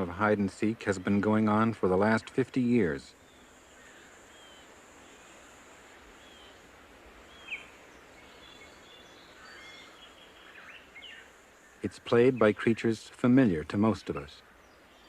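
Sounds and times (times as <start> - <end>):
steady outdoor hiss: 0.0 - 15.0
bird chirps: 3.0 - 5.4, 7.2 - 12.9.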